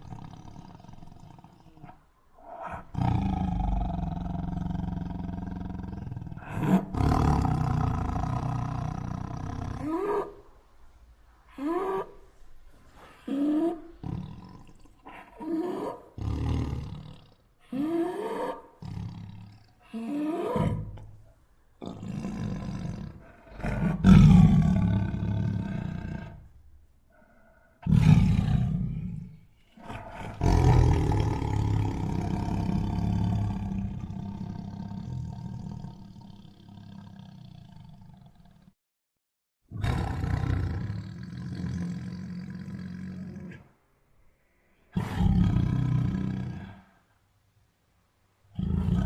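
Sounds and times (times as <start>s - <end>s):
tiger roaring: 2.4s - 10.4s, 21.8s - 26.5s, 27.8s - 38.6s, 39.7s - 43.7s, 44.9s - 46.9s, 48.5s - 49.0s.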